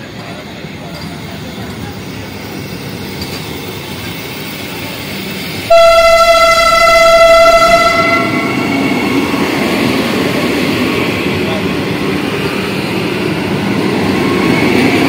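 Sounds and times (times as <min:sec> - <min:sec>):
train rushing past: 0:00.0 - 0:15.0
train horn blast: 0:05.7 - 0:09.0.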